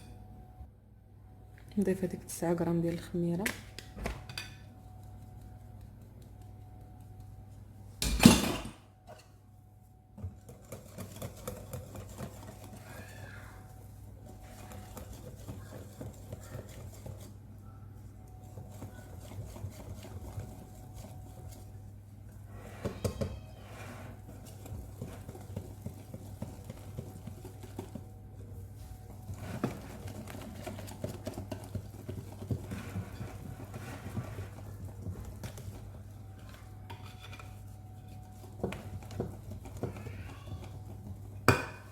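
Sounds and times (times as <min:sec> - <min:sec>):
utensil scraping and knocking bowl: 0:10.2 - 0:13.5, 0:14.2 - 0:17.4, 0:18.2 - 0:21.8, 0:22.5 - 0:41.9.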